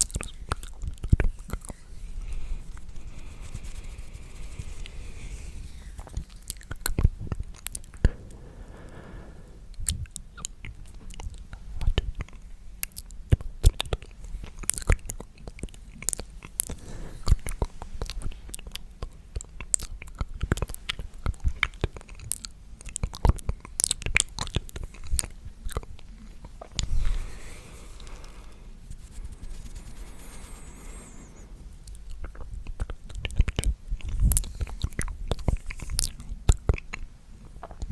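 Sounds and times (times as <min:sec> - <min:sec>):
wet mouth clicks and smacks: 0:00.0 - 0:01.8, 0:09.8 - 0:26.9, 0:31.8 - 0:37.9.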